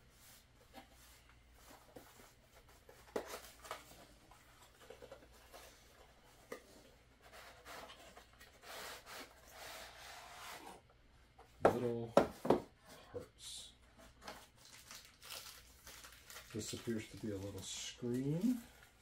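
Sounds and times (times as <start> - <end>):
packaging rustling: 14.3 - 19.0.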